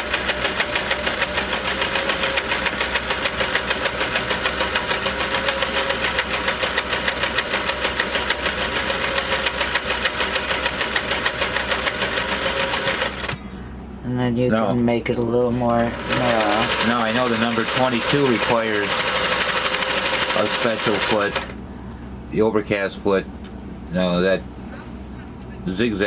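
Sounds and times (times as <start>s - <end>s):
sewing machine running: 0.0s - 13.4s, 15.7s - 21.6s.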